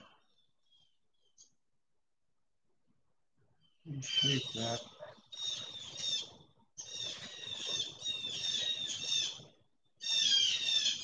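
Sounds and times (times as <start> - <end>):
birds calling: 3.6 - 11.0.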